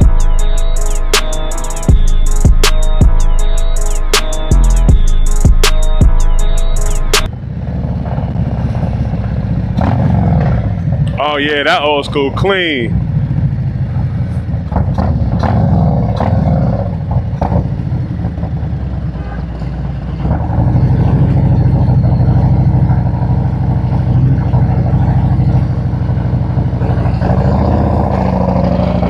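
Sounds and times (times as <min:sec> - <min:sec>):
motorcycle engine running: 0:00.0 - 0:11.4, 0:12.0 - 0:29.0
sharp clicks: 0:06.8 - 0:07.3.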